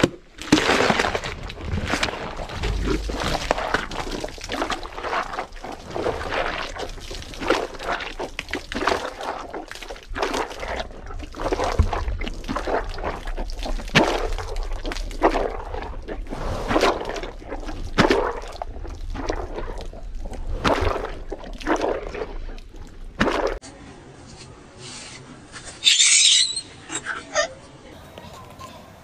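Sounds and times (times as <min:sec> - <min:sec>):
hippopotamus chewing: 0:00.0 - 0:23.6.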